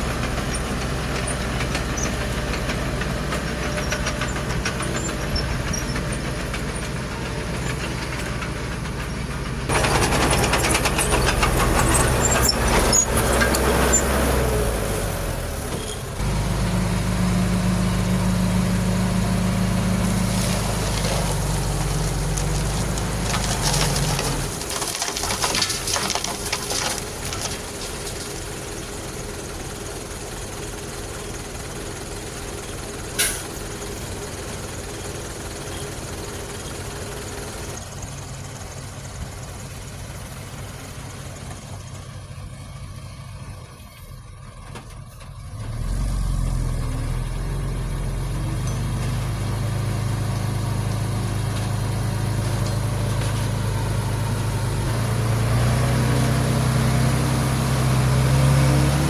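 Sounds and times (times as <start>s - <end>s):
heavy diesel engine idling: 0.0s - 24.7s, 27.0s - 45.6s, 46.8s - 55.7s
deep loud engine running: 0.0s - 24.9s, 45.4s - 59.0s.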